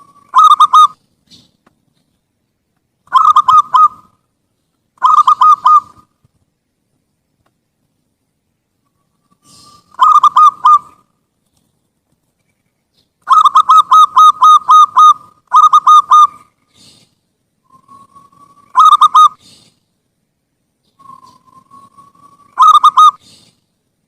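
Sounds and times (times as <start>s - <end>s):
dove staccato cooing: 0.0s - 1.4s, 3.1s - 4.2s, 5.0s - 6.1s, 9.2s - 11.1s, 13.2s - 17.1s, 17.7s - 19.7s, 21.0s - 23.6s.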